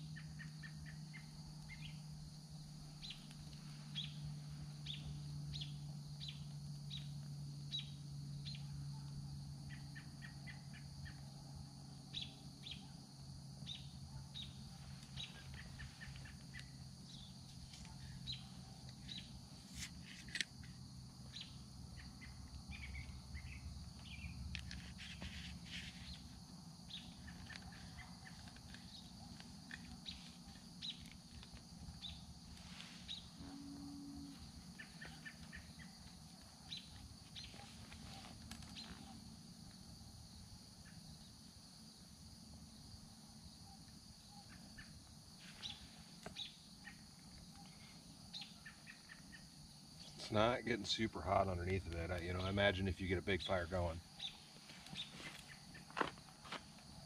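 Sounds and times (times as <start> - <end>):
insects humming: 0.0 - 57.0
birds chirping: 2.9 - 8.7, 13.6 - 39.2, 44.3 - 56.1.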